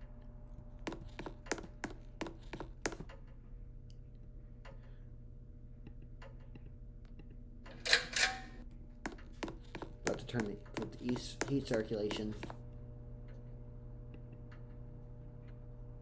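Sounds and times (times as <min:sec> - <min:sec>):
keyboard keys clicking: 0:00.9 - 0:03.3, 0:09.1 - 0:12.6.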